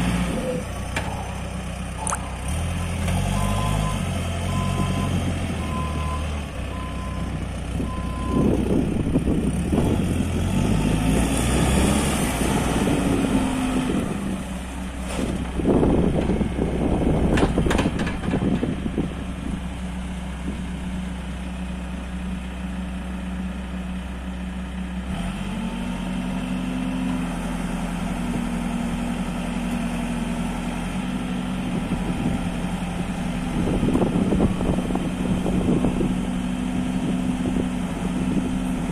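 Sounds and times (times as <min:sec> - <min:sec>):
diesel engine running: 0:00.0 - 0:38.9
reversing alarm beeping: 0:03.4 - 0:08.5.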